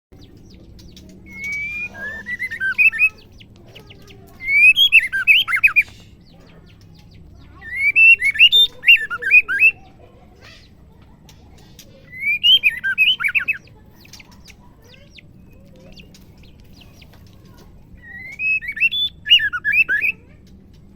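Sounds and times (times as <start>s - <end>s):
bird calling whistled notes: 1.3s - 3.3s, 4.4s - 5.9s, 7.6s - 9.8s, 12.0s - 13.6s, 18.0s - 20.3s.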